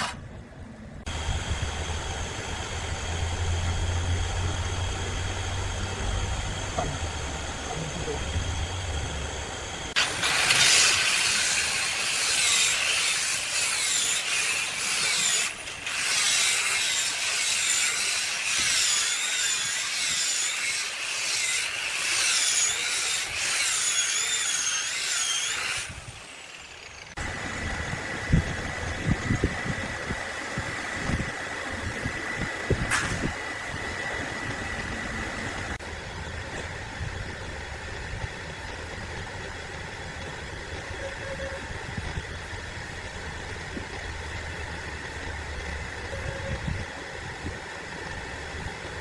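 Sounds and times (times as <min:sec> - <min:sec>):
saw cutting log with whine: 0:00.0 - 0:00.3, 0:01.1 - 0:49.0
steady high hum: 0:00.0 - 0:20.8.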